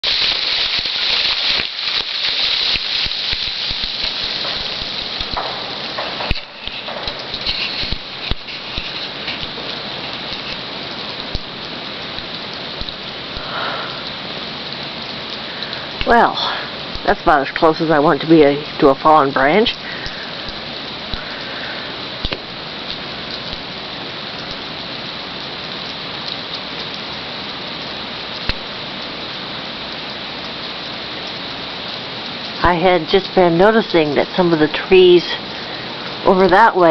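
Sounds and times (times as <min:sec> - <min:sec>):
ice bits ticking: 0:00.0 - 0:27.4
freezing rain hissing: 0:00.0 - 0:36.9
sharp clicks of ice: 0:02.7 - 0:10.6.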